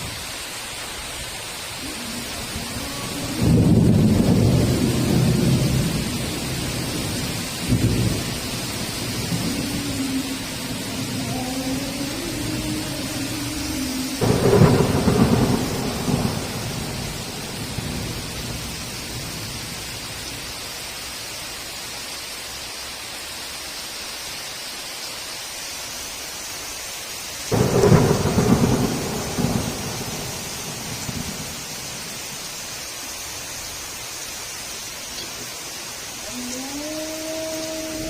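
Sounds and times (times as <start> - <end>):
heavy rain falling: 0.0 - 38.0
thunderclaps rumbling: 1.8 - 20.1, 27.5 - 32.5.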